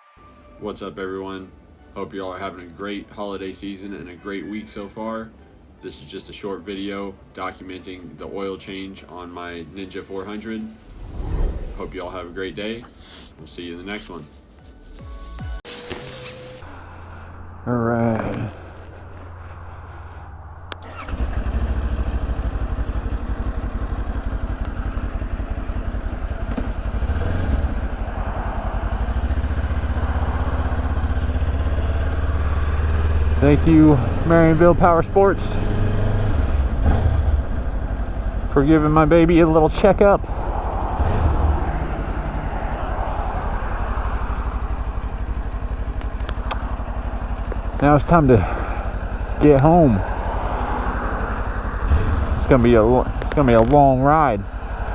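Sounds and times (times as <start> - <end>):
motorcycle engine revving: 16.4 - 54.9
motorcycle engine starting and idling: 18.2 - 28.2, 28.9 - 42.7, 43.4 - 54.9.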